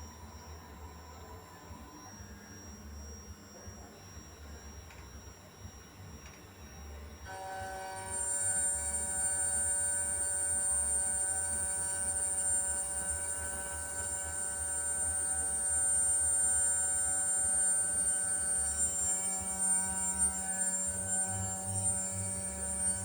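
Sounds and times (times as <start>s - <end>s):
milling machine whining: 0.0s - 23.0s.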